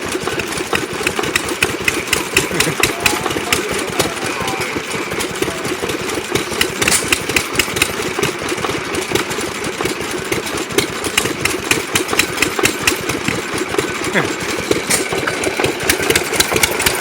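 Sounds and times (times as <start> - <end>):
gas engines running: 0.0 - 17.0
sharp clicks: 0.8 - 4.1, 6.4 - 8.3, 10.8 - 13.8.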